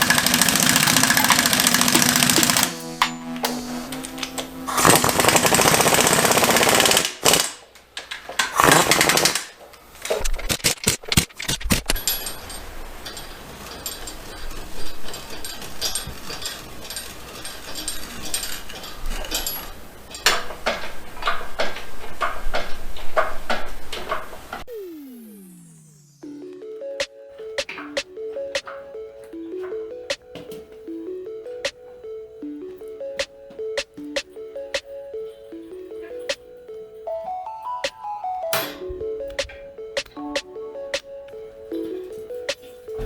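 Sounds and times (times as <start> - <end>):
power tool running: 0.0 - 7.4, 24.7 - 26.3
hand tools clicking on metal: 10.5 - 24.2.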